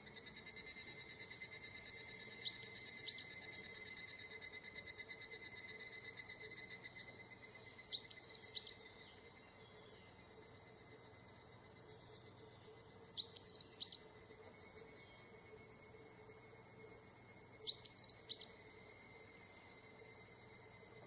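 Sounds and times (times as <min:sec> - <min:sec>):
cicadas chorus: 0:00.0 - 0:21.0
songbird chirping: 0:01.8 - 0:03.5, 0:07.1 - 0:10.4, 0:12.1 - 0:18.7.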